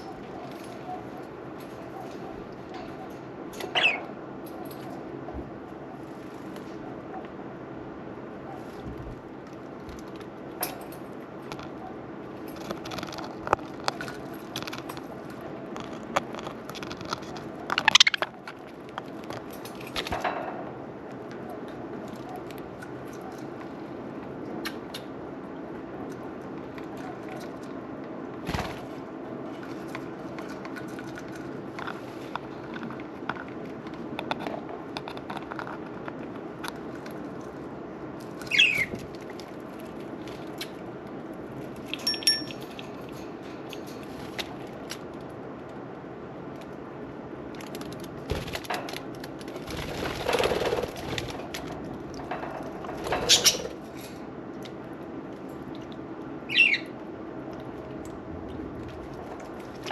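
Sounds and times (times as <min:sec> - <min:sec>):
budgerigars chirping and squawking: 0:03.6 - 0:04.1, 0:38.5 - 0:38.9, 0:53.2 - 0:53.7, 0:56.5 - 0:56.9.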